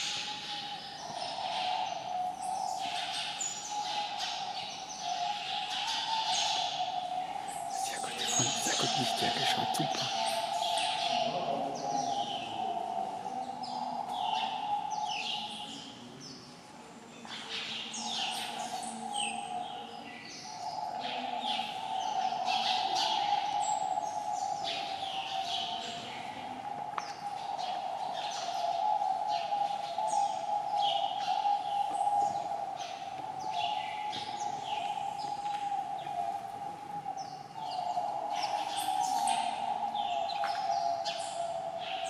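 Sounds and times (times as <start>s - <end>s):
birds chirping: 7.4s - 11.3s.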